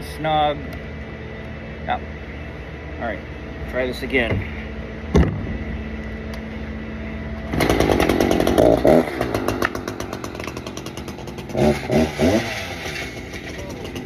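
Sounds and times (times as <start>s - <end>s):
chainsaw revving: 7.4s - 14.0s.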